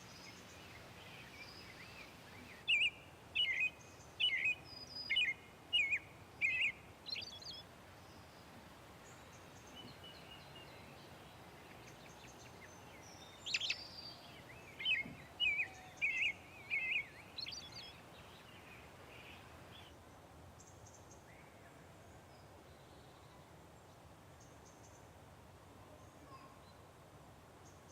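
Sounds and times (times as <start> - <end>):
songbird singing short notes: 0.0 - 7.6, 9.6 - 19.9
faint steady background hiss: 0.0 - 27.9.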